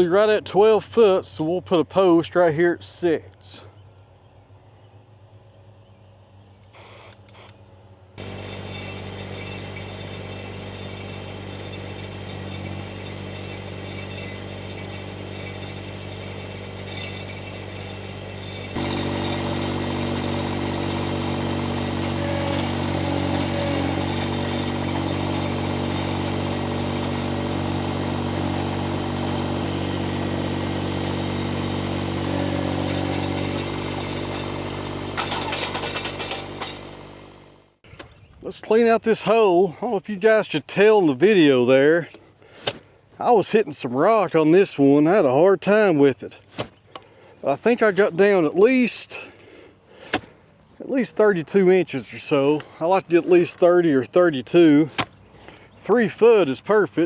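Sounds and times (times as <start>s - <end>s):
post-hole auger engine running: 6.6s - 37.8s.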